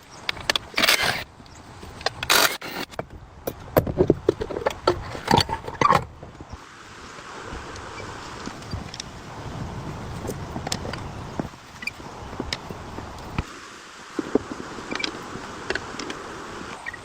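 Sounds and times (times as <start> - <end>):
scraping noises: 3.9 - 6.2.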